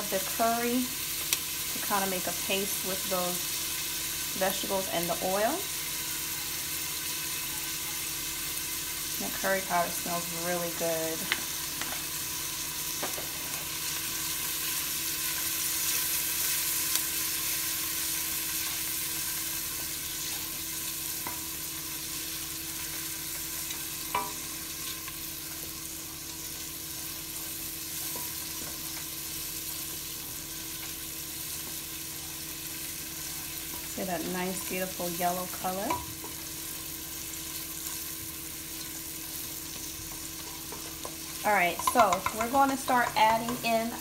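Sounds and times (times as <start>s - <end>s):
onions sizzling in hot oil: 0.0s - 44.0s.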